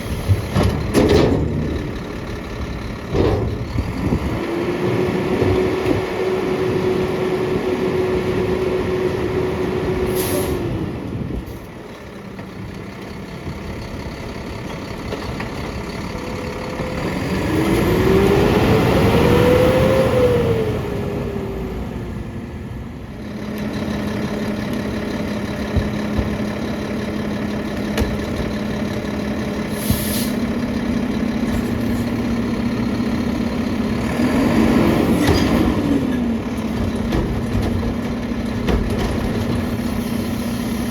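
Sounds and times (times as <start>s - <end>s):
diesel engine revving: 0.0s - 40.9s
packer hydraulics: 10.0s - 10.8s, 27.9s - 32.4s
air hiss: 29.7s - 30.4s.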